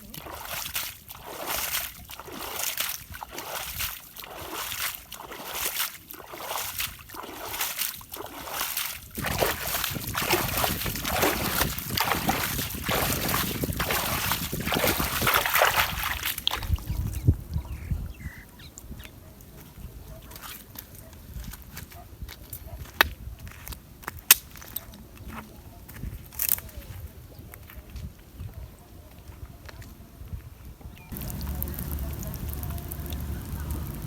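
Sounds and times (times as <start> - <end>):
water splashing and sloshing: 0.0 - 21.5, 31.1 - 34.0.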